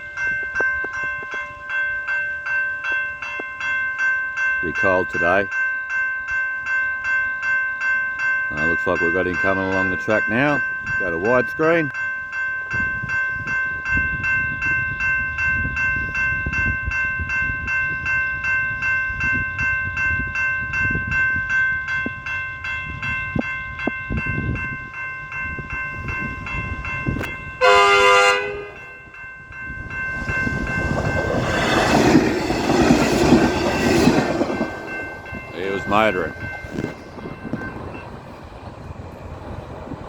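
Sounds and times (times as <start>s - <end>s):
level crossing bells ringing: 0.0s - 39.3s
railcar rushing past: 12.6s - 40.0s
railcar horn blast: 27.6s - 28.9s.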